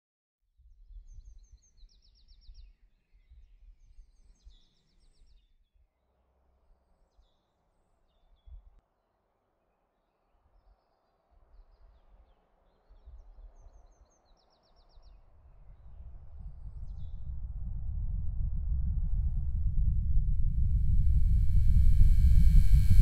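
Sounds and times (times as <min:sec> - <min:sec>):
faint birdsong: 0:00.6 - 0:08.8, 0:09.6 - 0:17.3
low outdoor rumble: 0:15.8 - 0:23.0
steady distant hiss: 0:20.5 - 0:23.0.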